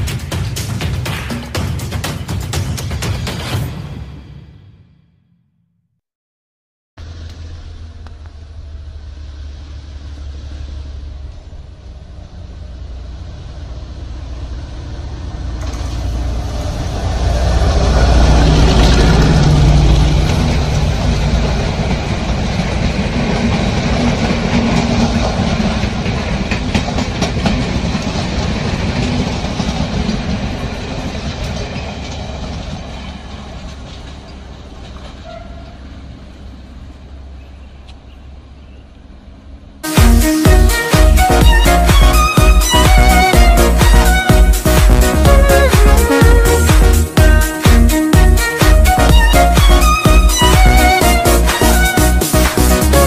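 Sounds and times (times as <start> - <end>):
diesel locomotive engine: 7.0 - 53.0
wheels clicking over rail joints: 20.2 - 36.8.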